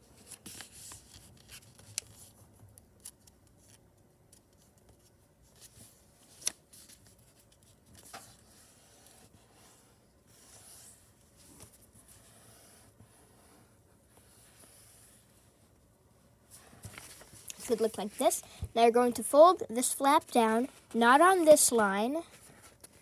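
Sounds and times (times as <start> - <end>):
paper rustling and crinkling: 0.0 - 2.4, 16.5 - 18.4.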